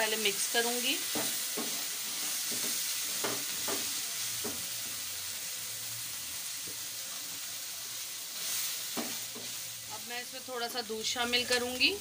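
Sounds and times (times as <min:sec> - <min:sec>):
food sizzling in a frying pan: 0:00.0 - 0:12.0
spatula scraping a pan: 0:01.0 - 0:04.6.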